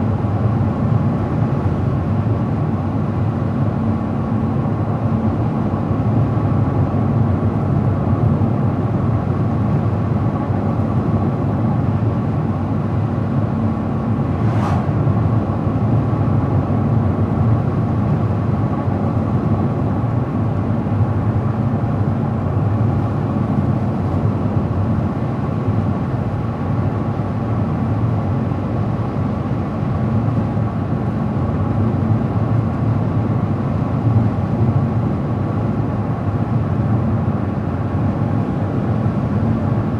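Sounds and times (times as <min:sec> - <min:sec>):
car driving at speed: 0:13.6 - 0:16.4.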